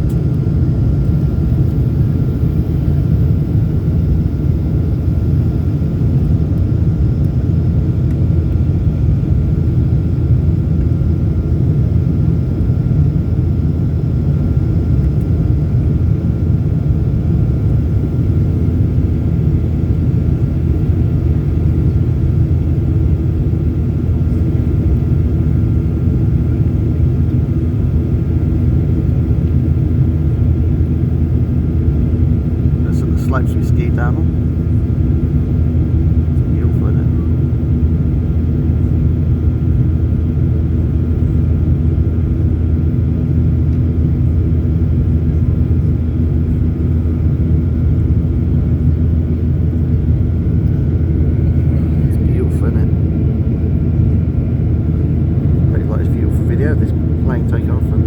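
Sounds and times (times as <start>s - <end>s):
second steady hum: 0.0s - 9.7s, 16.9s - 58.0s
airliner cabin engine drone: 0.0s - 58.0s.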